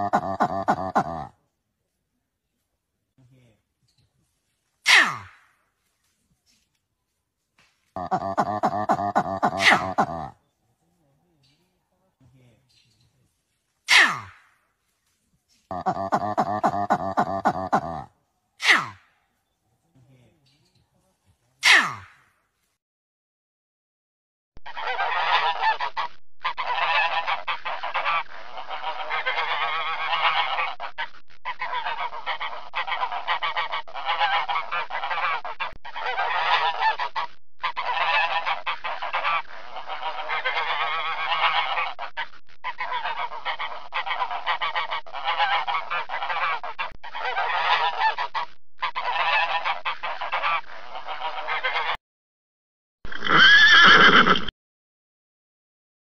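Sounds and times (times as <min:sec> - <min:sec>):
waterfowl honking: 0:24.7 - 0:52.0
horse whinnying: 0:53.1 - 0:54.5.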